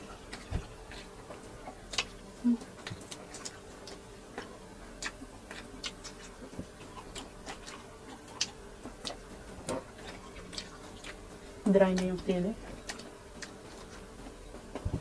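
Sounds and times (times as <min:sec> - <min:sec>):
faint steady hum: 0:00.0 - 0:15.0
wet chewing mouth smacks: 0:01.7 - 0:11.2.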